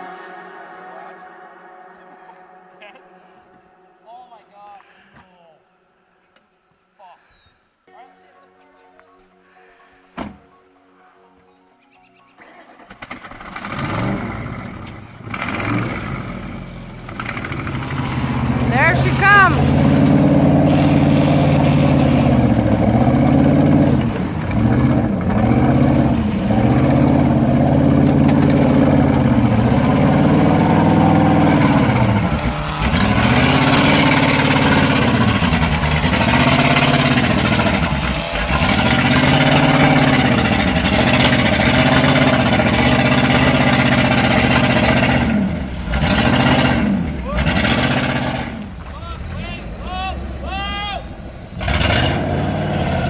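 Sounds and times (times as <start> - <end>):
vehicle engine revving under load: 13.1 - 53.0.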